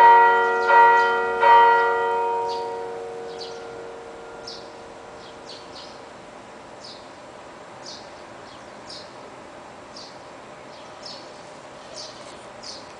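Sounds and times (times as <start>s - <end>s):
church bells humming: 0.0s - 6.1s
bird chirping: 2.5s - 3.7s, 4.4s - 6.0s, 6.8s - 7.1s, 7.8s - 9.2s, 9.9s - 12.9s.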